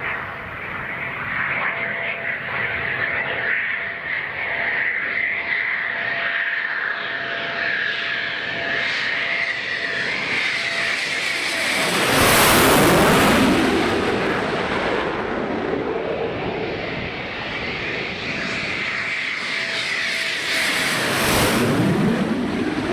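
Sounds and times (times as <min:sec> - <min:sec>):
jet passing by: 0:00.0 - 0:22.9.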